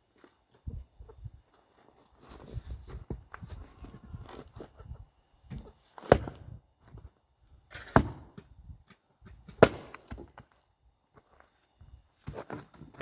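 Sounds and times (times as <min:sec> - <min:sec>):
axe splitting wood: 0:05.5 - 0:06.6, 0:07.7 - 0:10.4.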